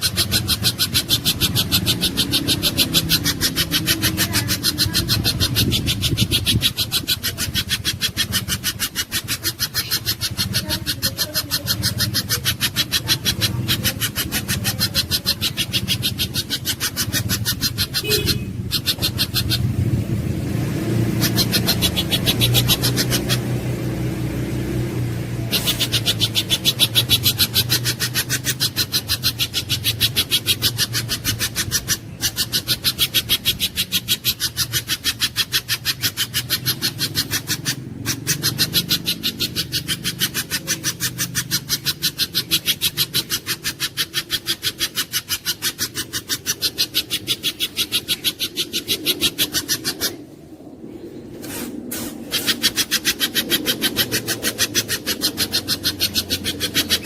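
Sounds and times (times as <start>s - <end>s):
steady low hum: 0.0s - 57.0s
bird calling in sharp high notes: 17.9s - 19.6s.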